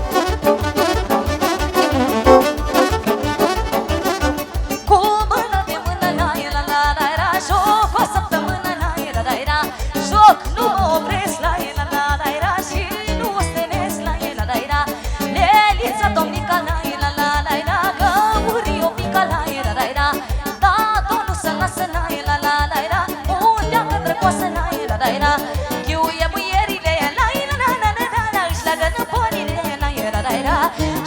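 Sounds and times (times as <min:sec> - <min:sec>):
folk dance music: 0:00.0 - 0:06.6.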